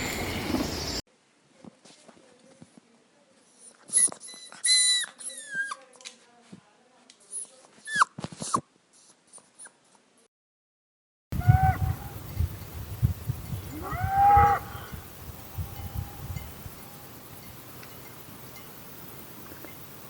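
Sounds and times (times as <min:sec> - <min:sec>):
high squeaks falling in pitch: 0:03.9 - 0:05.8
whining dog-like calls: 0:11.4 - 0:12.4, 0:13.7 - 0:15.0.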